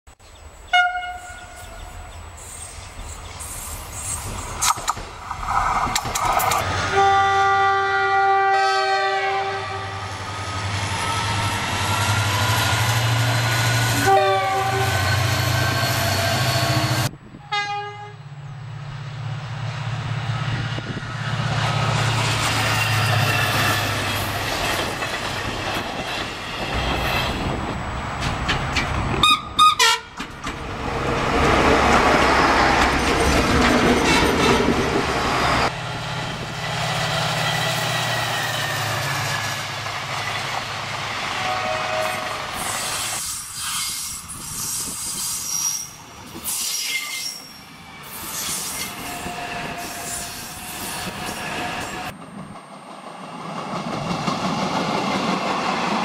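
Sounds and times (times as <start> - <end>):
train rumble and wheel clatter: 0.4 - 56.0
train horn blasts: 0.7 - 2.2, 6.8 - 10.3, 13.9 - 15.6, 16.2 - 18.2, 29.2 - 30.2, 41.3 - 42.7.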